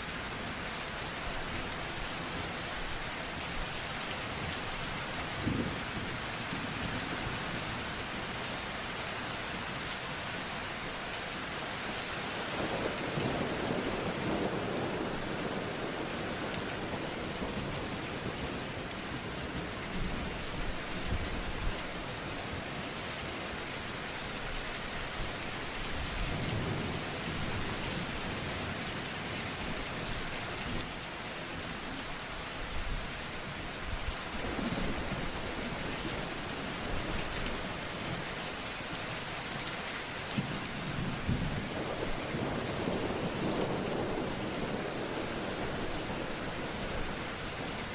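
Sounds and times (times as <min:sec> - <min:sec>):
heavy rain hissing: 0:40.5 - 0:47.9.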